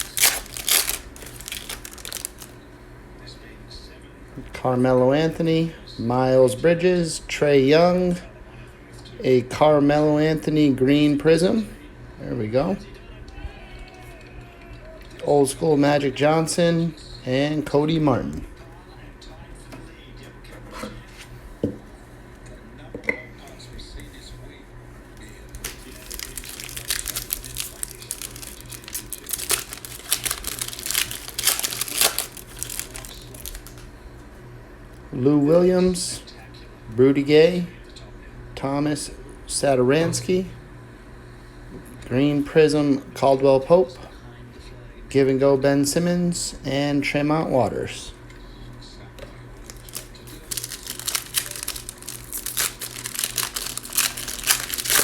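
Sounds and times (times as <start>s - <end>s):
plastic wrapper crinkling: 0.0s - 2.6s, 25.5s - 33.9s, 49.6s - 55.0s
faint low hum: 0.0s - 55.0s.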